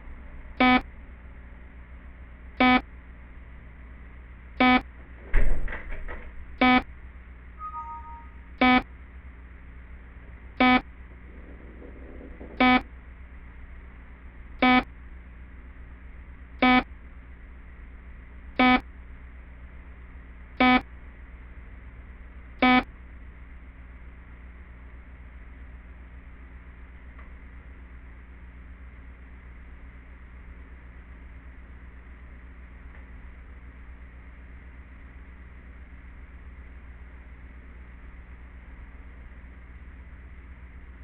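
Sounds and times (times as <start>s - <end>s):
alarm beeping: 0.6s - 0.8s, 2.6s - 2.8s, 4.6s - 4.8s, 6.6s - 6.8s, 7.6s - 8.8s, 10.6s - 10.8s, 12.6s - 12.8s, 14.6s - 14.9s, 16.6s - 16.8s, 18.6s - 18.8s, 20.6s - 20.8s, 22.6s - 22.8s
two-note electronic tone: 7.6s - 8.8s.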